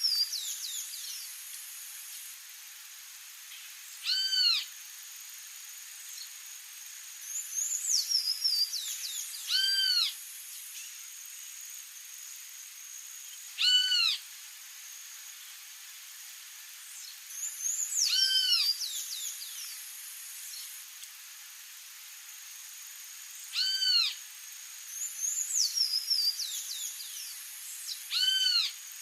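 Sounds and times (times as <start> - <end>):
bird drawn-out arched call: 4.0 - 4.7, 9.5 - 10.2, 13.6 - 14.2, 18.0 - 18.8, 23.5 - 24.2, 28.1 - 28.8.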